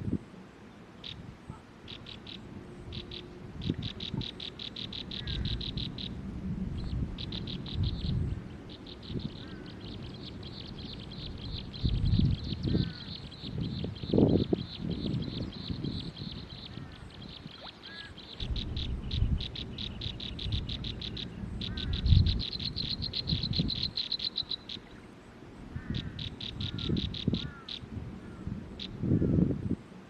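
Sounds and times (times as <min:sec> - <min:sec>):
small animal pulsing trills: 0:18.3 - 0:24.9.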